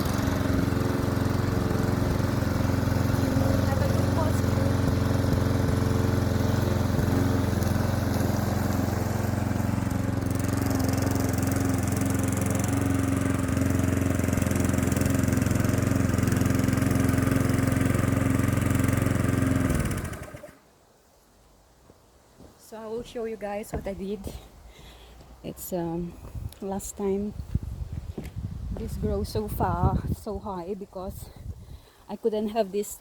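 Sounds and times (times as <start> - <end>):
lawn mower engine running: 0.0 - 20.6.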